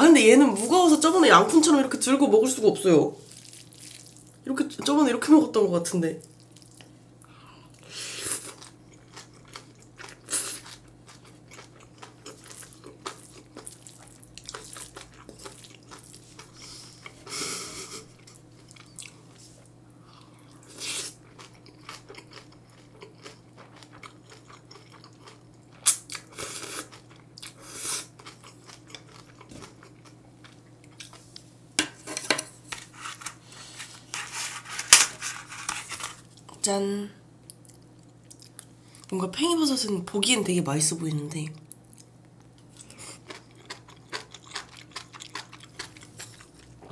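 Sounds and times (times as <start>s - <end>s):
crunching of crisp greens: 3.2s - 4.4s
person chewing food: 3.2s - 4.4s, 6.2s - 31.5s, 37.4s - 39.1s, 41.7s - 46.9s.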